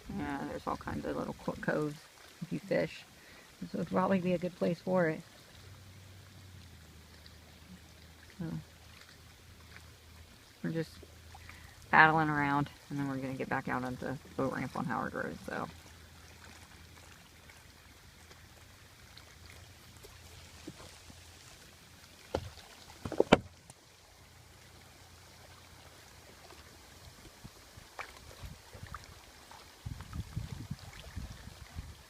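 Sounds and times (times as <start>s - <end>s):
paddle strokes in water: 5.2s - 12.0s, 12.8s - 32.0s
sharp knocks: 22.3s - 23.5s.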